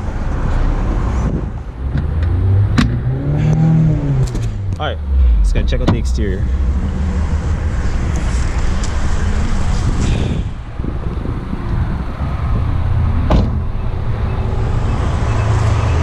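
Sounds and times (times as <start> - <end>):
car door shutting: 5.8 - 6.1, 13.3 - 13.6.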